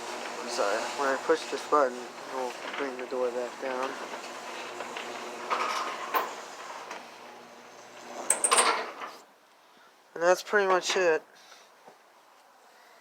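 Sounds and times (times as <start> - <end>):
garage door opener running: 0.0 - 9.2.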